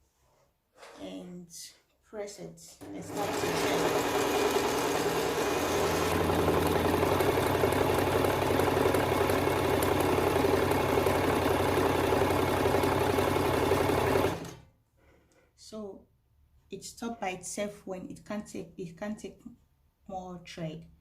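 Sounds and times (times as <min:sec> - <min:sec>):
sewing machine winding bobbin: 0:02.8 - 0:14.6.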